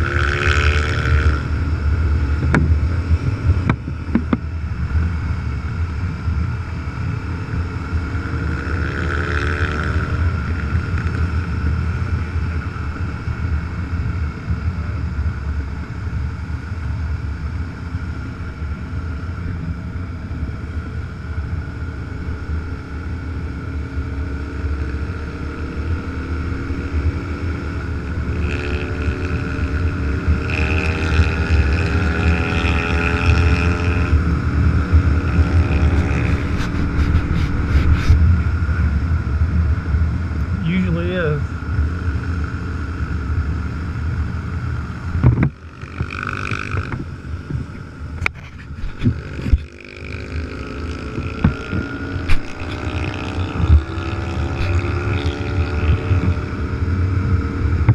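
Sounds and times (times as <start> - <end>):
motorcycle engine running: 0.0 - 57.9
wind rushing past microphone: 27.0 - 57.9.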